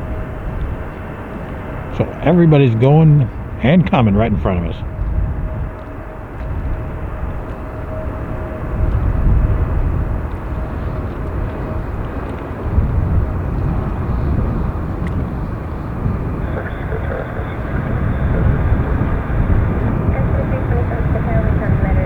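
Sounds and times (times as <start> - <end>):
high engine whine: 0.0 - 22.0
jet engines rumbling: 0.0 - 22.0
wind buffeting on microphone: 0.0 - 22.0.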